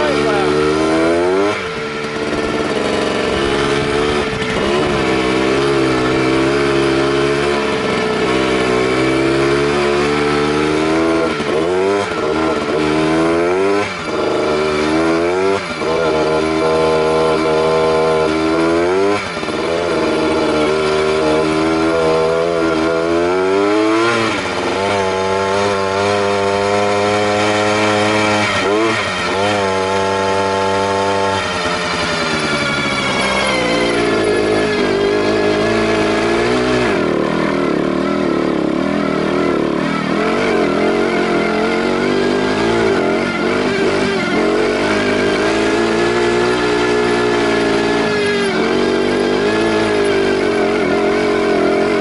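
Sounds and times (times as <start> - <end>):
motorcycle engines revving: 0.0 - 52.0
steady engine drone: 0.0 - 52.0.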